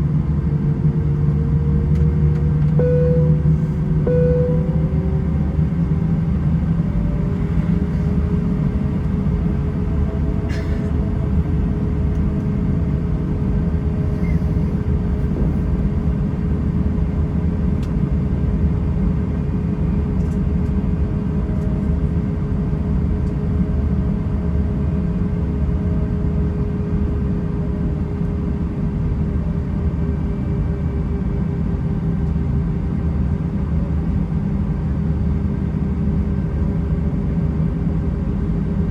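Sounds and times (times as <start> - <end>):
jet aircraft engine rumble: 0.0 - 24.8.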